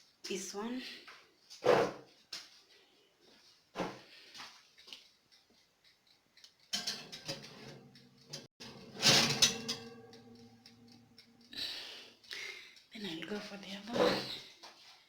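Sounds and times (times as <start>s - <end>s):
loaf tin clattering against rack: 6.8s - 10.3s
oven humming: 6.8s - 11.5s.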